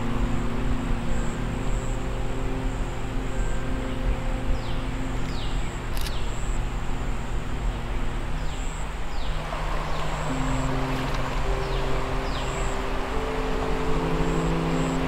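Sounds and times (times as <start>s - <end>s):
low steady drone: 0.0s - 15.0s
click: 5.2s - 6.2s.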